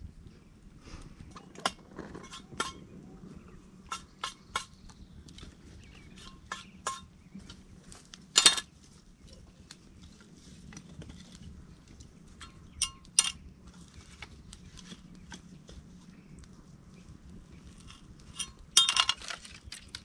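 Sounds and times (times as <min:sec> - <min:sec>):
ringing clatter: 0:06.2 - 0:07.6, 0:08.4 - 0:08.7, 0:18.3 - 0:19.6
hard objects knocking and clinking: 0:08.4 - 0:08.7, 0:18.3 - 0:19.9.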